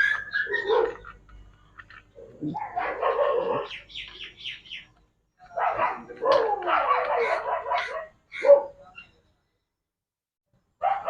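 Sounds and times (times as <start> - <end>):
dog barking and yelping: 0.0 - 1.2, 2.2 - 3.8, 5.6 - 8.8.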